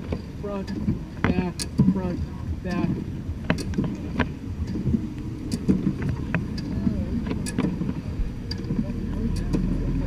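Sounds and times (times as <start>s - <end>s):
low steady rush of water pump: 0.0s - 10.0s
pump mechanism clanking: 0.0s - 10.0s.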